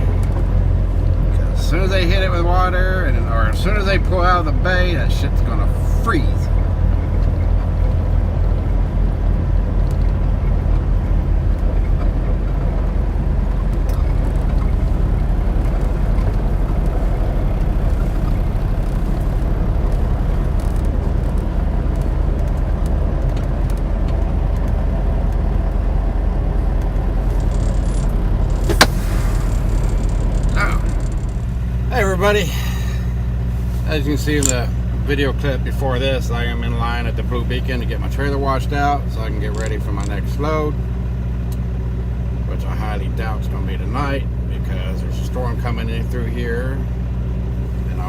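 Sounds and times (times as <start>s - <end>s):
diesel truck engine running: 0.0s - 48.0s
sharp click: 27.3s - 31.5s, 34.4s - 34.7s.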